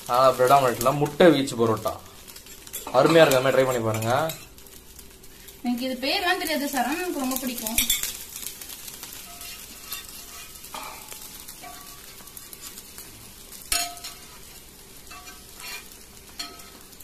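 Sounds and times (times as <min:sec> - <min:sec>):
bread sizzling in oil: 0:00.0 - 0:17.0
utensil scraping pan: 0:07.8 - 0:12.9, 0:13.7 - 0:16.9.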